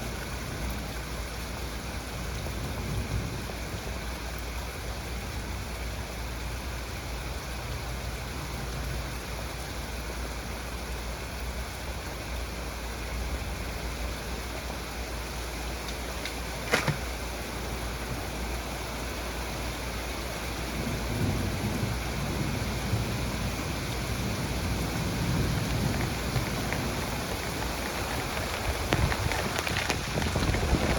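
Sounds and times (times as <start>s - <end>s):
heavy rain falling: 0.0s - 30.9s
sharp crack: 15.8s - 17.3s
thunder rumbling: 20.7s - 30.9s.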